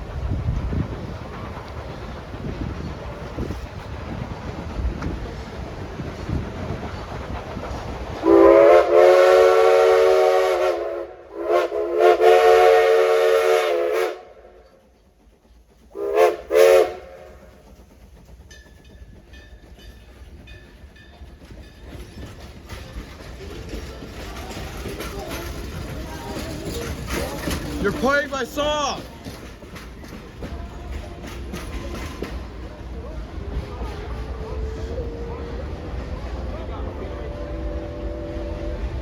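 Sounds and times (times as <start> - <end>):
steam locomotive whistle blasts: 8.2 - 14.6, 16.0 - 17.4, 37.2 - 39.0.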